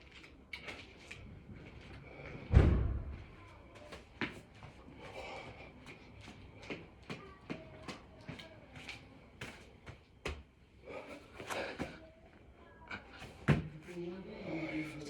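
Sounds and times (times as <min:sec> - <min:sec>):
heavy thud: 0:02.5 - 0:03.4.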